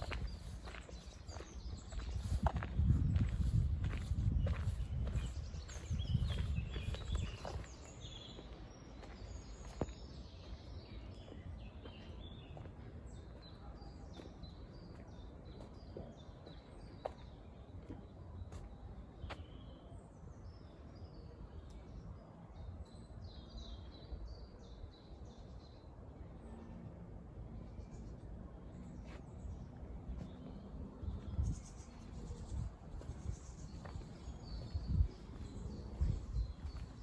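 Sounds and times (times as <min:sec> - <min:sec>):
birds singing and chirping: 0:00.0 - 0:09.8.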